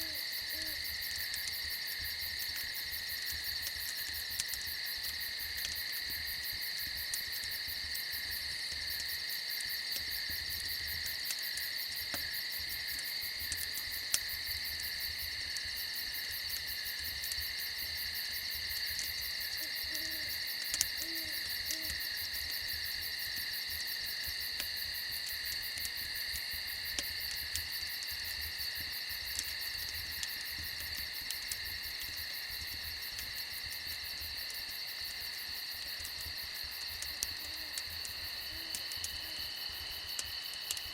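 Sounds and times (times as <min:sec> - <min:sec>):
owl hooting: 0:00.0 - 0:00.8, 0:19.6 - 0:20.3, 0:21.0 - 0:22.0
crickets trilling: 0:00.0 - 0:40.9
fire crackling pops: 0:00.0 - 0:40.9.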